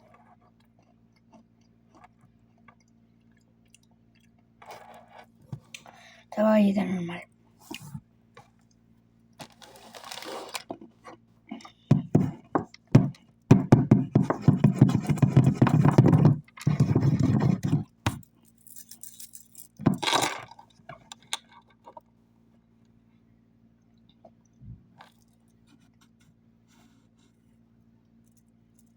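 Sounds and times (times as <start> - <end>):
snack packaging crinkling: 9.4 - 10.7.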